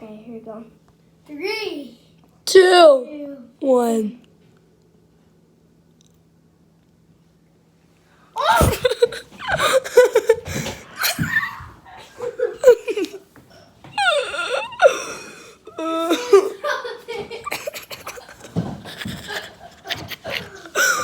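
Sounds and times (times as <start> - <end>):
people laughing hard: 8.4 - 13.2, 14.0 - 21.0
wordless cries and yelps: 8.4 - 13.2, 13.9 - 16.7.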